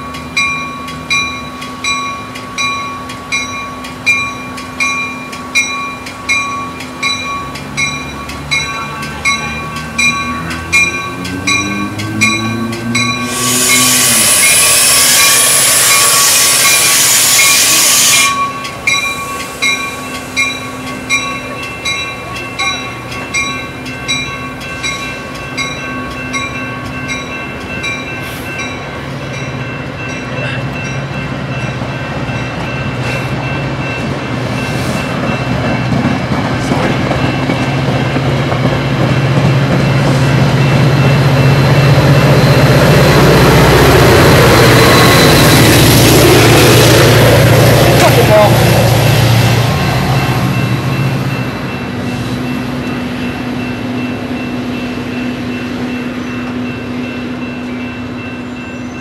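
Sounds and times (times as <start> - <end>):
passenger train passing: 0.0 - 59.0
bell dinging: 0.4 - 14.0, 18.3 - 36.0
train wheel squeal: 1.2 - 27.2, 39.9 - 47.5, 55.9 - 59.0.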